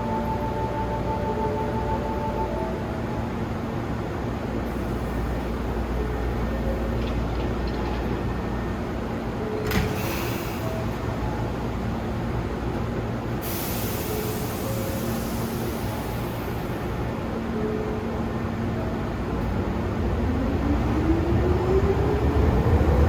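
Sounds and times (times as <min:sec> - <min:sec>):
electric train rumbling: 0:00.0 - 0:23.0
hiss: 0:13.4 - 0:16.4.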